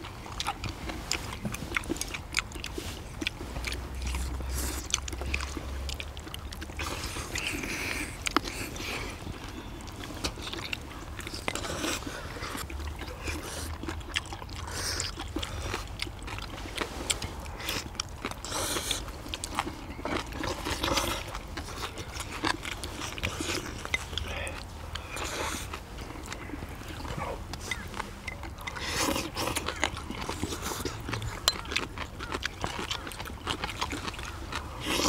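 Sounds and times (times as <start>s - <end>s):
chewing and crunching: 0.0s - 35.0s.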